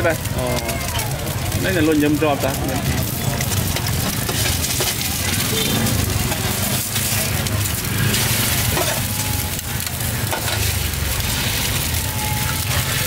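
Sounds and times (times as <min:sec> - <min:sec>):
eggs sizzling in oil: 0:00.0 - 0:13.0
metal spatula scraping a pan: 0:03.0 - 0:11.8.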